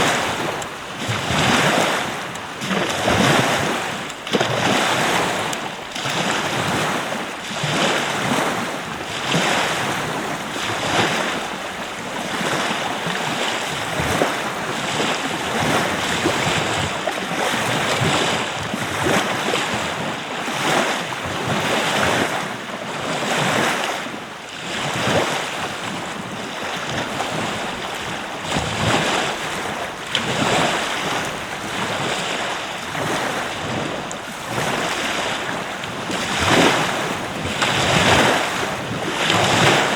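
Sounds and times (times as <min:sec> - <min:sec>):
ocean surf washing on beach: 0:00.0 - 0:39.9
wind blowing across microphone: 0:00.0 - 0:39.9.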